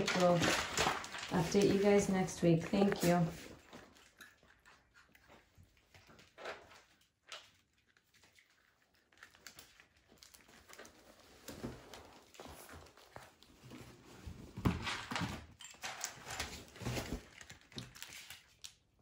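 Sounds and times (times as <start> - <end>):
puppies tapping and scuffling: 0.0 - 18.4.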